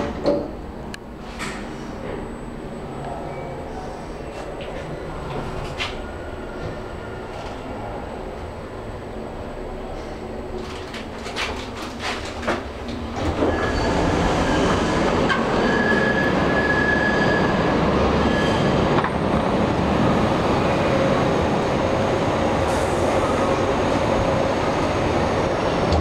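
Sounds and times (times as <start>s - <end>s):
train wheels rumbling on rails: 10.0s - 26.0s
high-pitched wheel squeal: 13.4s - 18.8s.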